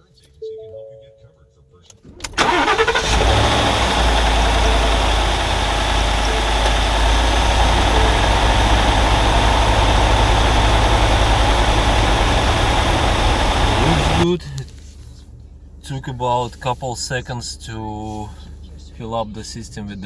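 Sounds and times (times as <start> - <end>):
pickup truck engine idling: 2.3 - 14.3.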